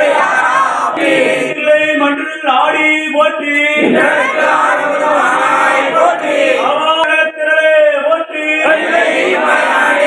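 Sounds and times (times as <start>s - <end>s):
man chanting a hymn: 6.6s - 9.0s.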